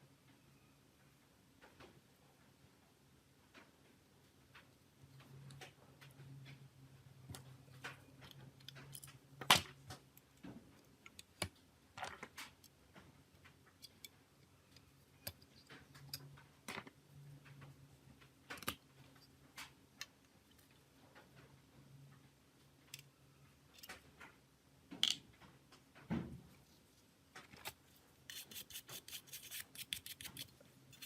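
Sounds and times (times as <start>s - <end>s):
small parts clicking and tapping: 7.3s - 21.5s.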